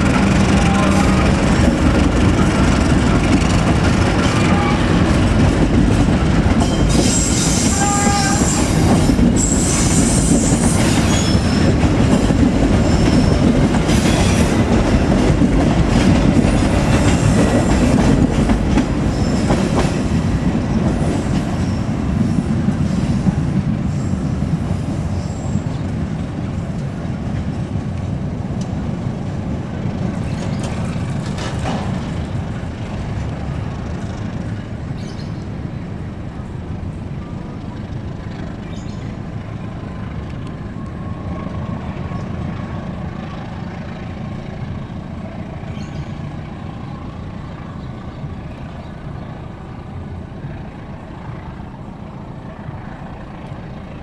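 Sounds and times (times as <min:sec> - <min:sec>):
train wheels rumbling and clacking: 0:00.0 - 0:54.0
high wheel squeals: 0:06.6 - 0:11.8, 0:12.8 - 0:14.6.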